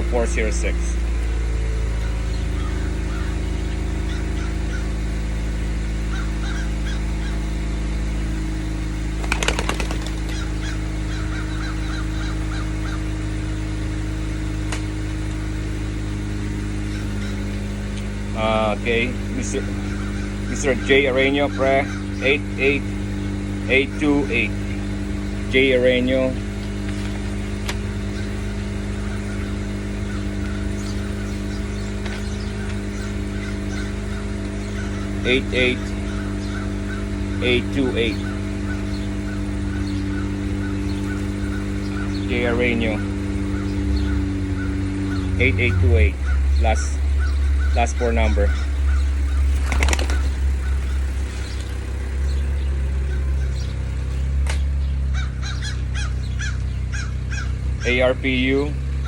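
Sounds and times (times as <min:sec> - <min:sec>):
low mechanical hum: 0:00.0 - 0:59.0
short bird calls: 0:00.0 - 0:59.0
rapid wing flapping: 0:09.1 - 0:13.0, 0:48.5 - 0:51.9.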